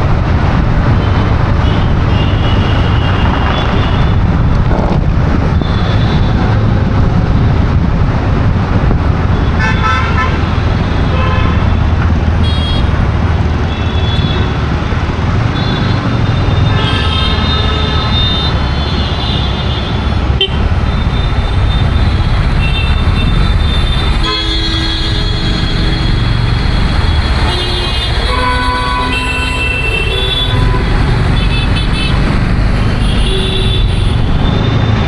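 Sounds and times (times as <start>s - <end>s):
road traffic rumble: 0.0s - 35.0s
car horn toots: 22.6s - 26.4s, 27.4s - 32.2s.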